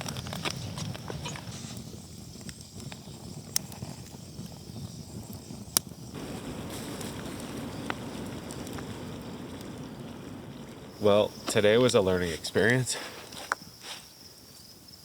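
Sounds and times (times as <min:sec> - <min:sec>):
rushing noise: 0:06.2 - 0:12.6.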